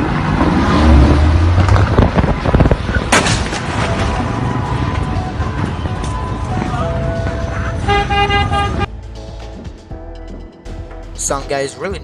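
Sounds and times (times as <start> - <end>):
heavy rumble: 0.0 - 9.8
loud bang: 1.6 - 4.4.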